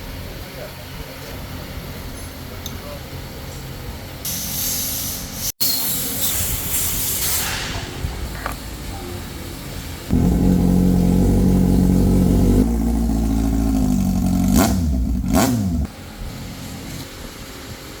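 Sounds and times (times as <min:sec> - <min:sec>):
motorcycle engine idling: 0:10.1 - 0:16.6.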